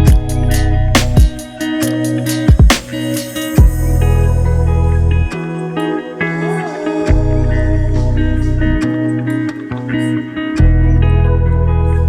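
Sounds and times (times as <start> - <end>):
bass line: 0.0 - 1.4, 3.6 - 5.4, 7.1 - 9.2, 10.6 - 12.0
plucked guitar melody: 0.0 - 12.0.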